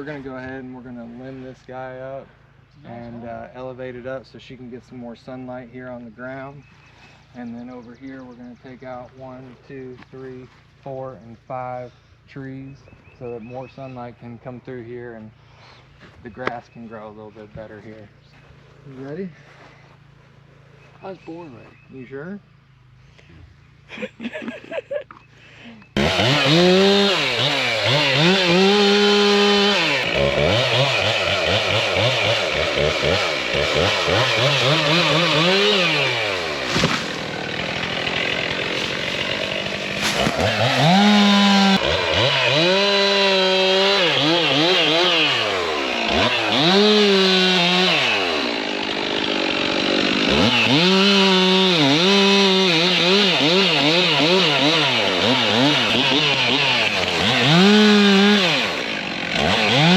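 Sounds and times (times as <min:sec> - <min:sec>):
chainsaw revving and idling: 0:25.8 - 0:59.9.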